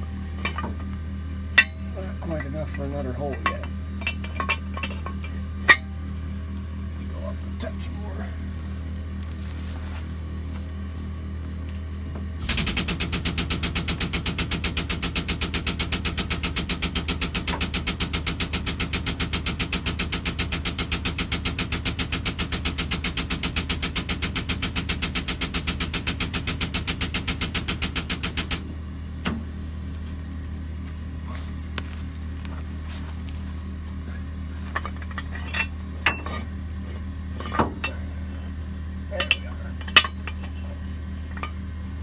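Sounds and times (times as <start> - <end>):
air hydraulic jack rattling: 12.4 - 28.6
single click: 12.4 - 28.6.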